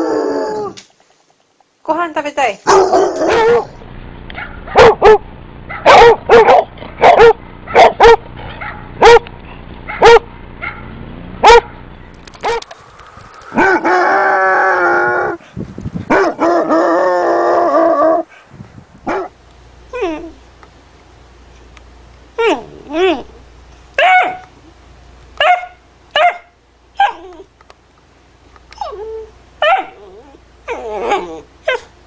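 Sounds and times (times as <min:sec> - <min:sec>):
dog barking: 0:02.7 - 0:03.7, 0:04.4 - 0:09.3, 0:09.9 - 0:11.8, 0:12.4 - 0:12.7, 0:16.1 - 0:16.5, 0:19.1 - 0:19.3, 0:24.0 - 0:24.5, 0:25.4 - 0:27.3, 0:29.6 - 0:30.0
dog baying: 0:02.7 - 0:03.8, 0:28.7 - 0:31.9.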